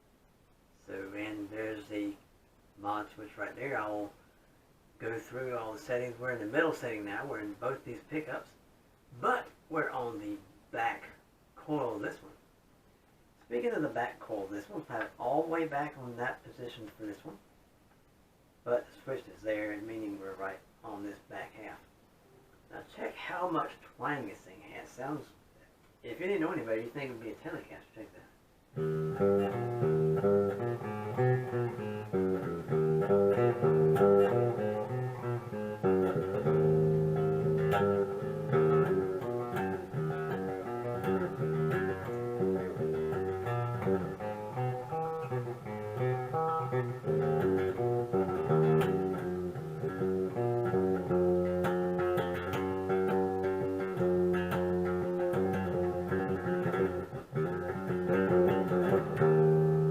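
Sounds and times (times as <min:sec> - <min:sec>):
clean electric guitar: 0:28.7 - 0:59.9.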